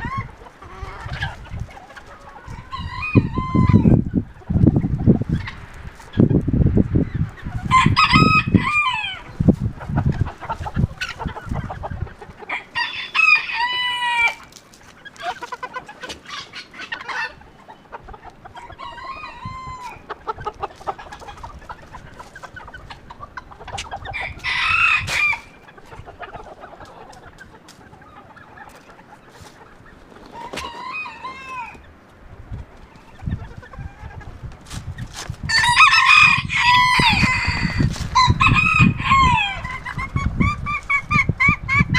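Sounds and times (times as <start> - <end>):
roosters crowing: 0.0 - 4.0, 7.5 - 9.4, 10.2 - 14.6, 18.4 - 20.2, 23.6 - 27.0, 30.2 - 32.0, 35.4 - 41.9
wind rumbling on microphone: 0.0 - 12.5, 17.3 - 28.1, 29.4 - 41.9
hens clucking: 0.0 - 41.9.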